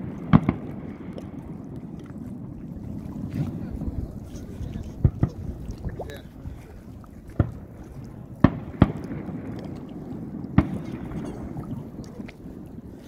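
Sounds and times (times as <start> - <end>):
fireworks bangs: 10.6 - 11.2.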